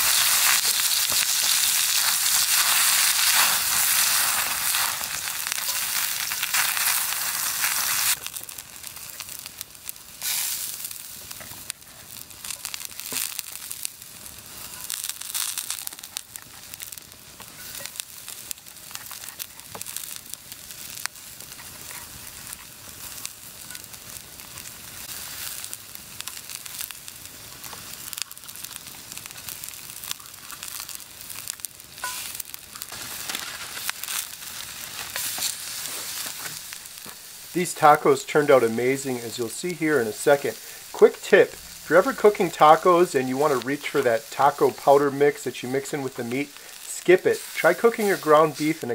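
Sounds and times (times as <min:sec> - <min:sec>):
small pops and crackles: 0:00.0 - 0:37.3
meat sizzling in a skillet: 0:00.0 - 0:48.9.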